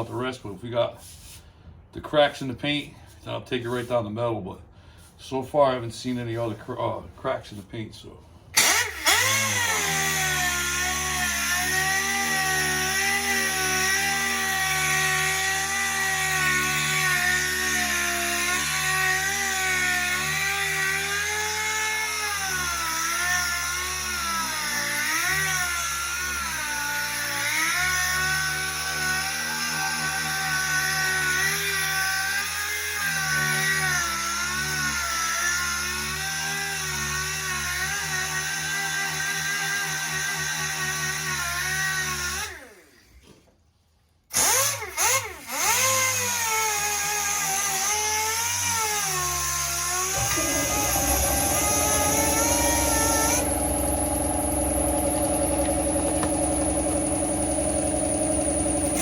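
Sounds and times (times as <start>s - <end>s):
power sander whining on metal: 8.6s - 38.0s, 44.4s - 59.0s.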